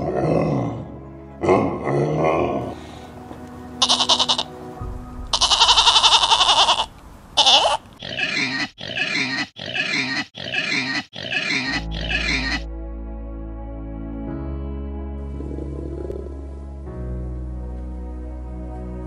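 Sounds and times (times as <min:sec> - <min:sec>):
goat bleating: 0:03.8 - 0:04.5, 0:05.3 - 0:12.6
pig grunting: 0:05.4 - 0:12.6, 0:15.2 - 0:16.5.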